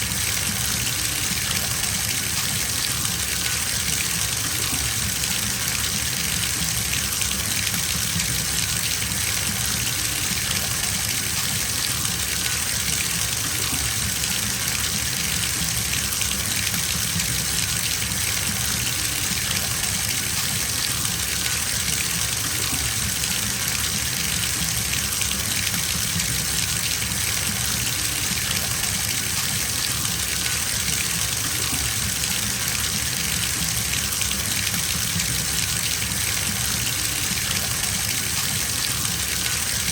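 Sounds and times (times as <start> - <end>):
water pouring into bathtub: 0.0 - 39.9.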